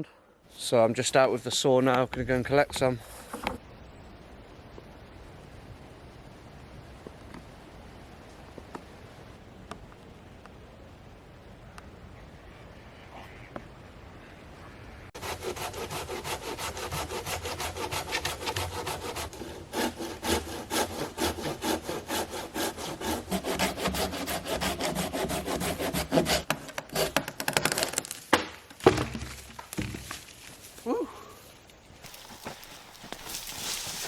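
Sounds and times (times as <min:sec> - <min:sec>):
hand saw cutting wood: 0:15.2 - 0:27.9.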